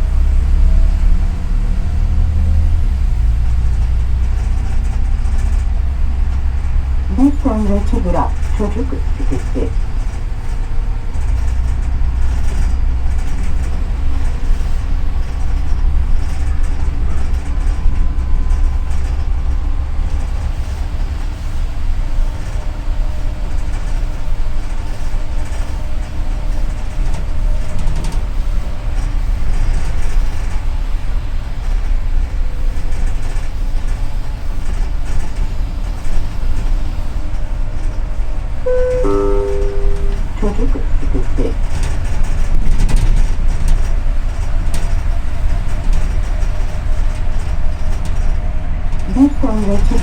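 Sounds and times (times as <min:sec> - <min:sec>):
bus engine hum: 0:00.0 - 0:24.9, 0:44.2 - 0:50.0
chime of clear tones: 0:38.7 - 0:41.6.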